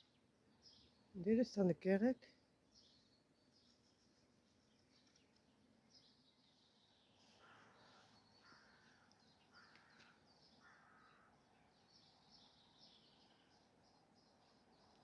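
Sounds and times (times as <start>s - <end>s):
small birds twittering: 0.0s - 1.4s, 2.7s - 15.0s
bird harsh calls: 7.2s - 11.4s.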